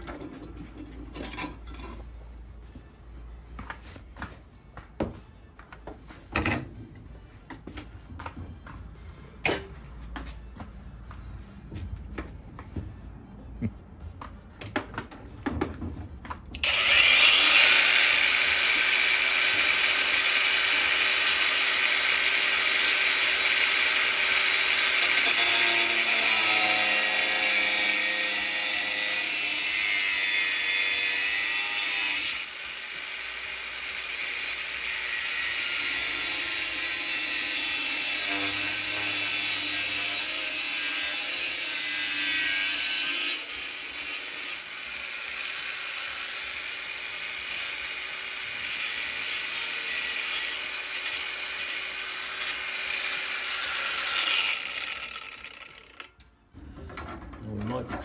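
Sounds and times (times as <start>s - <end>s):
power tool grinding sheet steel: 16.6s - 56.1s.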